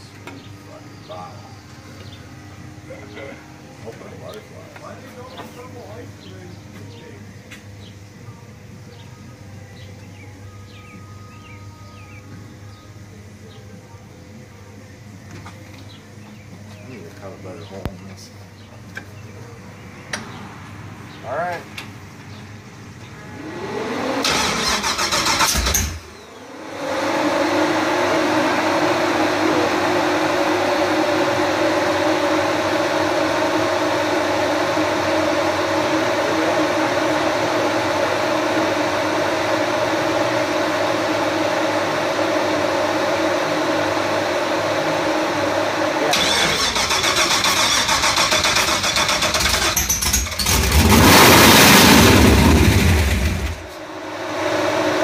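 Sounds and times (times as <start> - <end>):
v-eight engine starting and running: 21.3 - 55.0.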